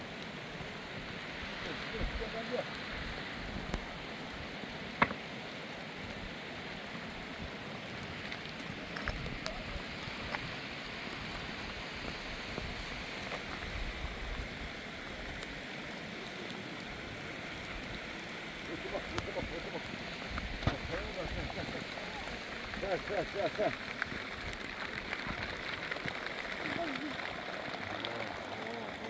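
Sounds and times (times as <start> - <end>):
heavy rain falling: 0.0 - 29.0
drips and small clicks: 7.9 - 11.4, 18.6 - 29.0.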